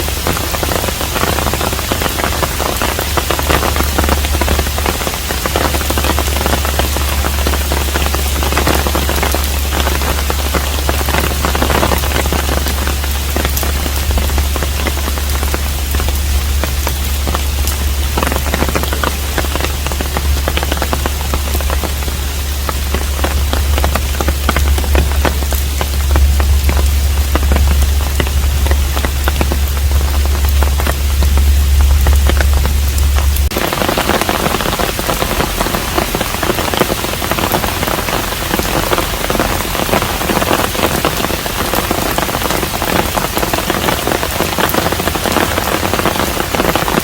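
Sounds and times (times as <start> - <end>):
low rumble: 0.0 - 47.0
rain drops on a roof: 0.0 - 47.0.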